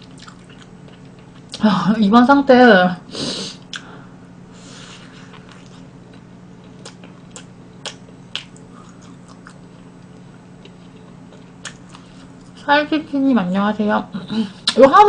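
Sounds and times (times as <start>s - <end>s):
person chewing food: 0.0s - 1.6s, 4.8s - 12.6s
steady low hum: 0.0s - 15.0s.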